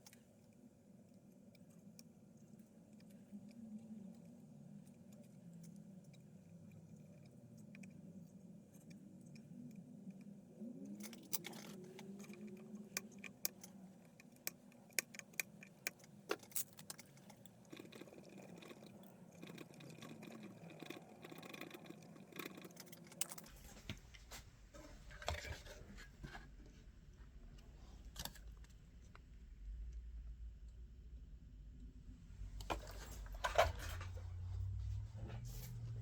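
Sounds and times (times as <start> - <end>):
low hum: 25.9 - 36.0.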